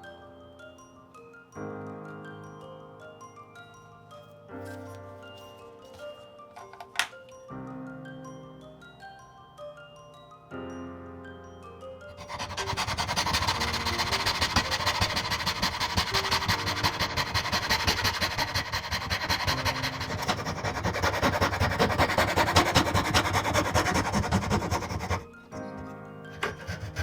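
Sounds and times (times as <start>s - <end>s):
soft mallet background music: 0.0s - 27.0s
rasping strokes on wood: 12.2s - 25.4s, 26.3s - 27.0s.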